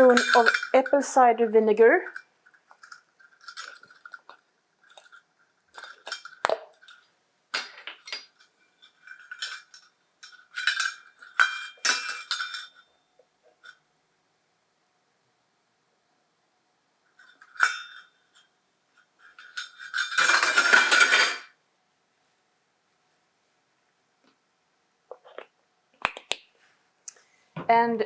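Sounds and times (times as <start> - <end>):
spoon clinking against a bowl: 0.0 - 0.8.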